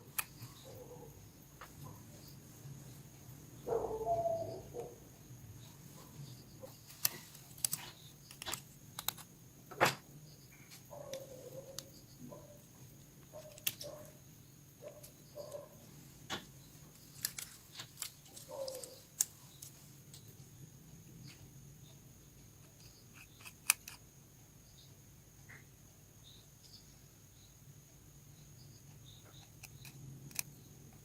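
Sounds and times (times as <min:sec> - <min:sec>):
small tools clicking on plastic: 0:06.8 - 0:09.3, 0:22.6 - 0:24.0, 0:29.2 - 0:30.5.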